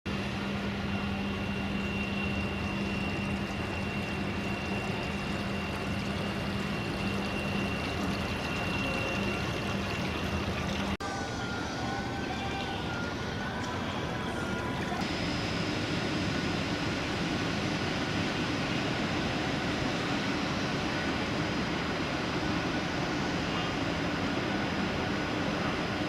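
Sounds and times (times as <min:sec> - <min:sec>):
low machinery hum: 0:00.1 - 0:26.0
thin high whine: 0:00.1 - 0:26.0
faint wavering tone: 0:00.6 - 0:15.4.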